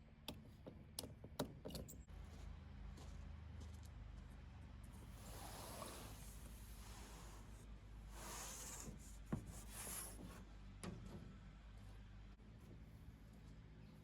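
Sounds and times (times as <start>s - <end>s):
faint scraping and rubbing: 5.0s - 10.5s.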